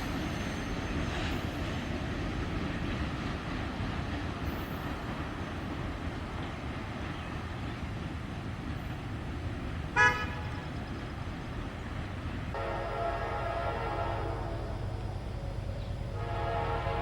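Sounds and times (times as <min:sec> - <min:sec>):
train rumbling by: 0:00.0 - 0:17.0
locomotive horn chord: 0:10.0 - 0:10.6, 0:12.5 - 0:17.0.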